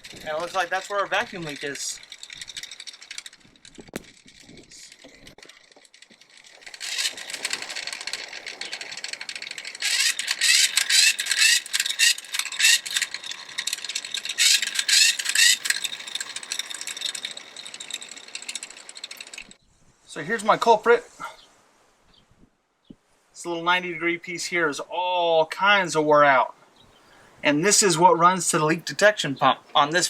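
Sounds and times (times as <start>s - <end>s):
plastic parts rattling and clicking: 0.0s - 19.6s.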